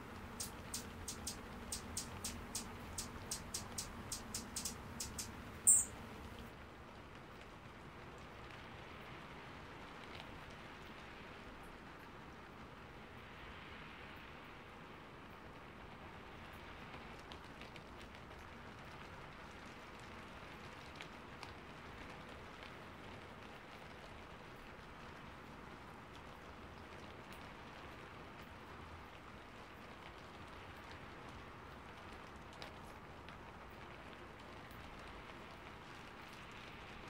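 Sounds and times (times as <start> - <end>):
raindrops ticking: 0.0 - 6.5
light rain hiss: 0.0 - 37.0.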